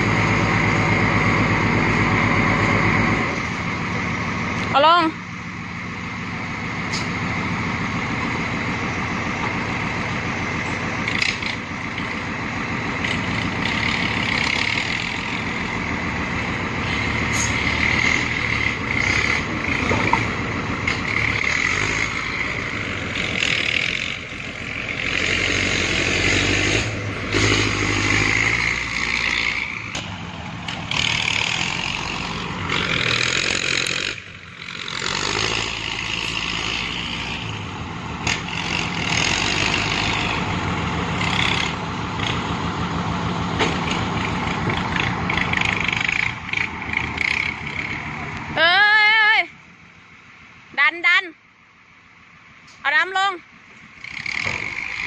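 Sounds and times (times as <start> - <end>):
dump truck diesel engine straining: 0.0 - 55.0.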